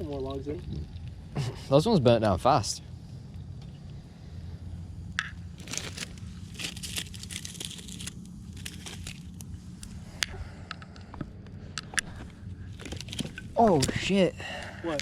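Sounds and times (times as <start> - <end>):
campfire crackling and popping: 4.9 - 15.0.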